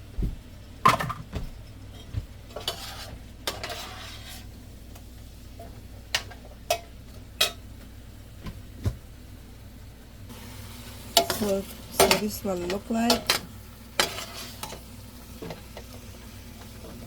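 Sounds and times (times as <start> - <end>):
utensil scraping pot: 1.9 - 4.6, 11.1 - 13.4, 14.0 - 15.6.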